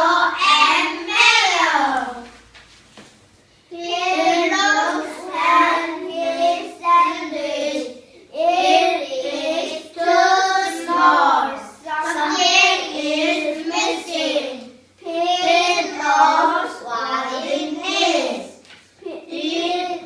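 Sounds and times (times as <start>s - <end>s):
child singing: 0.0s - 2.3s.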